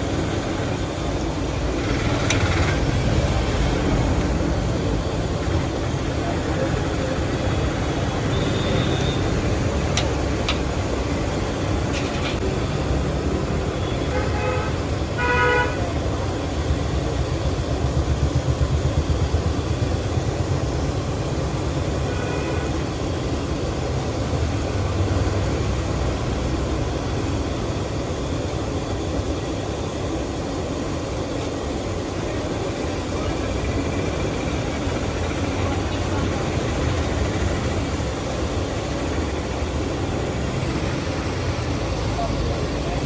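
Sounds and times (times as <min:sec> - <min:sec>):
traffic engines rumbling: 0:00.0 - 0:43.0
vehicle horns honking: 0:08.2 - 0:09.4, 0:13.8 - 0:15.9, 0:22.1 - 0:22.9.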